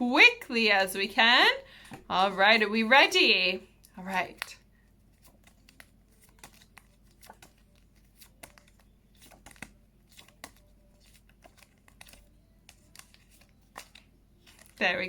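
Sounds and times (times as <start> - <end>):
paper cards rustling: 3.8 - 15.0.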